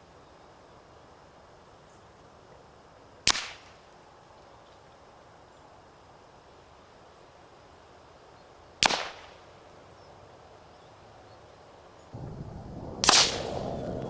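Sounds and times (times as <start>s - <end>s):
background noise: 0.0s - 14.0s
suppressed rifle shots: 12.2s - 14.0s.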